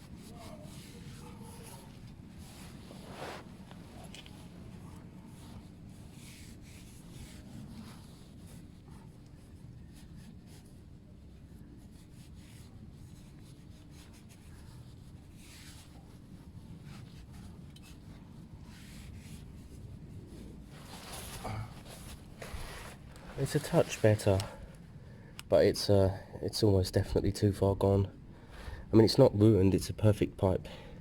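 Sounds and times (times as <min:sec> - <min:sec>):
cloth rubbing on metal pipe: 0:00.0 - 0:24.7.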